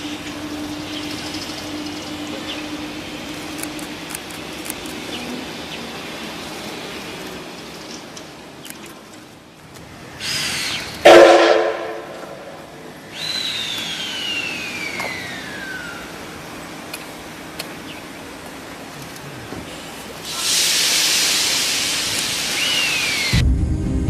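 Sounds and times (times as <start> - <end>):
steam locomotive hissing: 19.4 - 23.4
loud hiss of escaping steam: 20.2 - 23.4.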